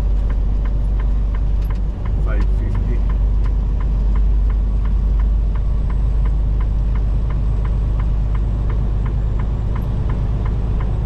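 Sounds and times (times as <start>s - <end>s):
truck engine and road noise: 0.0s - 11.0s
turn signal ticking: 0.0s - 11.0s.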